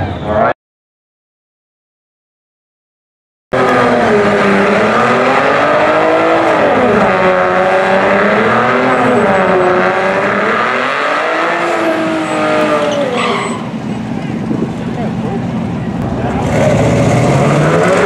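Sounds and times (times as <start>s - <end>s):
car engine revving: 3.6s - 18.0s.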